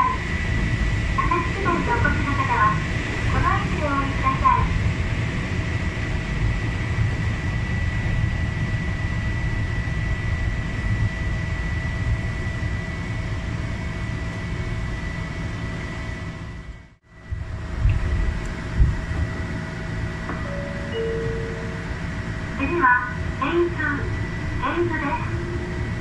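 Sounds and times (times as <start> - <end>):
train wheels rumbling on track: 0.0 - 11.4, 17.3 - 26.0
high-pitched tone: 20.3 - 22.5.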